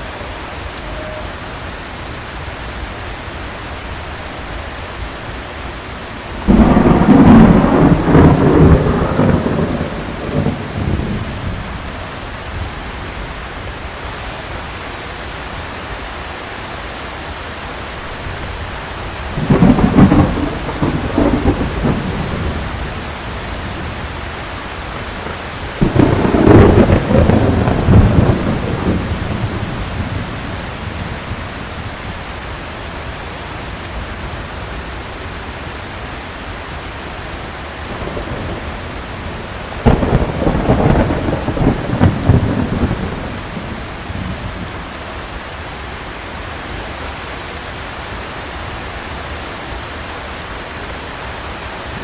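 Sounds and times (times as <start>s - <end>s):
heavy rain: 0.0s - 52.0s
thunder rumbling: 6.0s - 13.2s, 18.0s - 35.8s, 37.4s - 45.3s.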